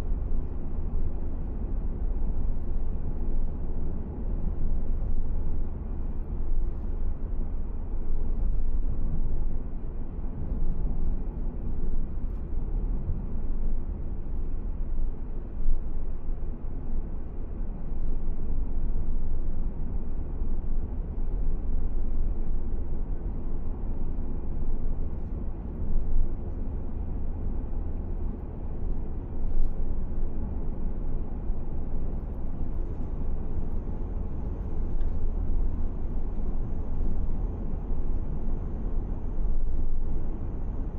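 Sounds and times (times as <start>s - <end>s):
faint light ticks: 29.4s - 30.2s, 32.1s - 37.4s.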